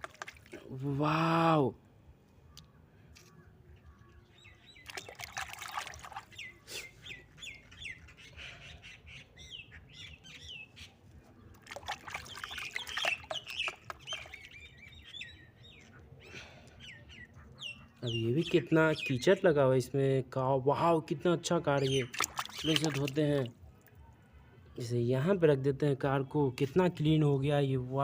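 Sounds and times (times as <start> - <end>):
water splashing: 0.0 - 0.7, 4.8 - 6.4, 11.5 - 14.6, 22.0 - 23.5
small birds chirping: 2.3 - 19.5, 21.7 - 24.9.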